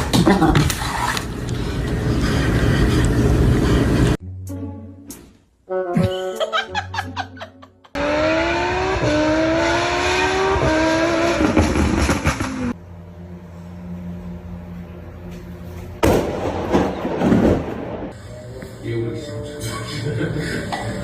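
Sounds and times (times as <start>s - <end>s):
engine accelerating hard: 8.0s - 15.5s.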